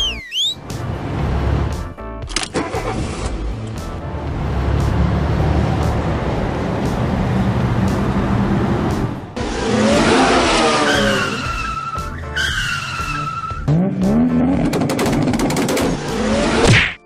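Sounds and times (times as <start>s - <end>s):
background music: 0.0s - 17.0s
car engine revving: 2.6s - 16.7s
tyres skidding and squealing: 4.3s - 16.7s.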